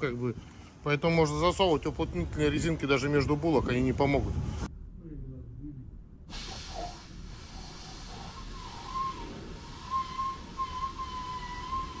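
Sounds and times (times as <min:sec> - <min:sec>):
road and wind noise: 0:00.0 - 0:08.6
high whistling tone: 0:08.1 - 0:12.0.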